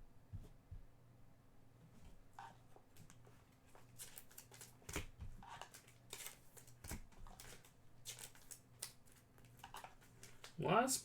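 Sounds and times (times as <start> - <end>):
trading cards being handled: 3.7 - 10.6.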